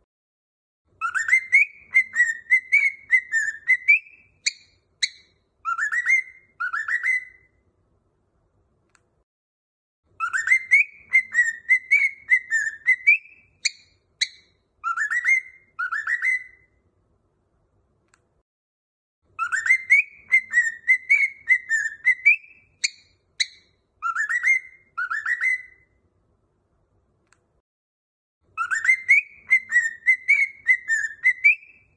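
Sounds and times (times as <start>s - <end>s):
cockatiel whistling a tune: 0.9s - 7.6s, 10.1s - 16.8s, 19.3s - 26.0s, 28.5s - 31.9s.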